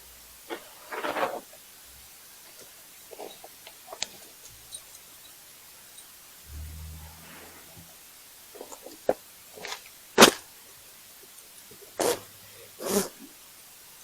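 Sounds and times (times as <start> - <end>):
low hum: 6.4 - 8.6.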